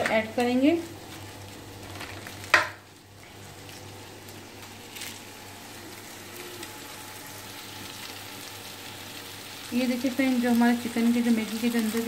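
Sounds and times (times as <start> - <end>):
sauce sizzling in oil: 0.8 - 12.0
plastic packaging crinkle: 1.0 - 2.7, 3.6 - 5.5.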